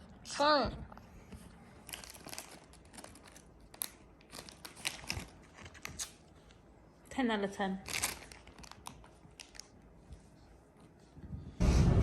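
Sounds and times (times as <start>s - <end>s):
crinkling and rustling: 0.8s - 6.7s, 7.8s - 11.2s.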